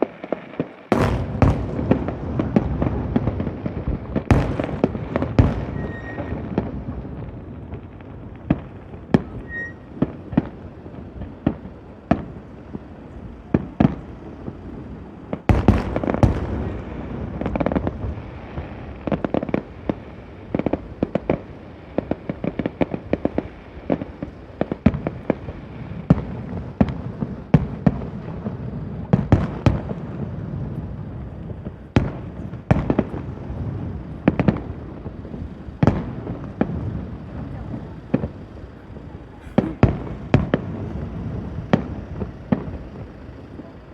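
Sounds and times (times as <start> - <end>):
fireworks shells bursting: 0.0 - 13.3, 31.5 - 43.9
fireworks rumble and crackle: 0.0 - 43.9.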